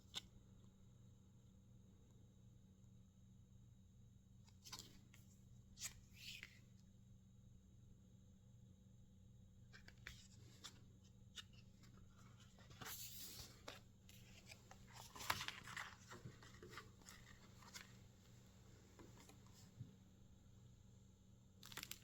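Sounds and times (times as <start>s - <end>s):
packaging clicks and rustles: 12.6s - 18.0s, 21.6s - 22.0s
sharp packaging crackle: 21.6s - 22.0s.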